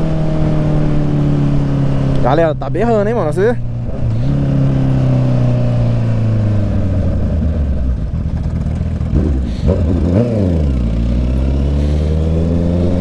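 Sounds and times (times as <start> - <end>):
motorcycle exhaust bellowing: 3.6 - 13.0.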